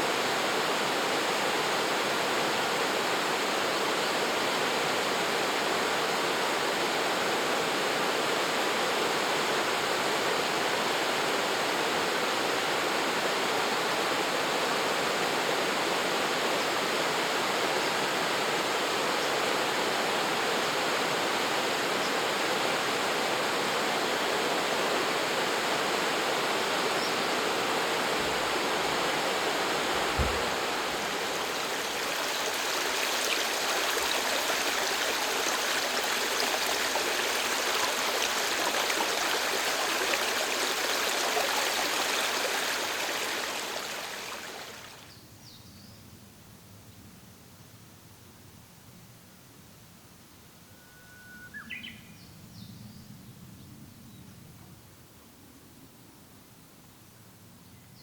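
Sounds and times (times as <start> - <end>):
rushing stream water: 0.0 - 45.1
brief low thump: 29.9 - 31.0.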